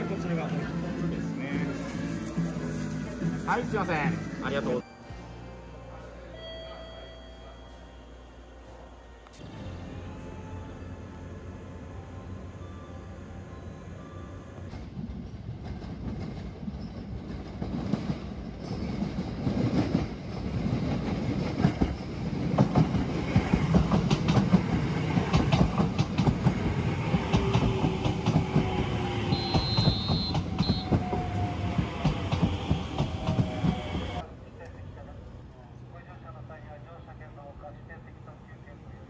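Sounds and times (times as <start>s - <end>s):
train rumble: 7.6s - 39.0s
wheels clacking over rail joints: 15.6s - 34.2s.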